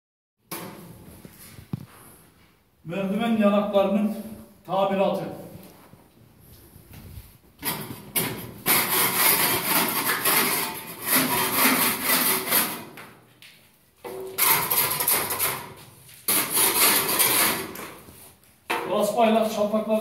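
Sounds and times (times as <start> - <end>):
rasp scraping plaster: 7.6 - 13.0, 14.1 - 18.2.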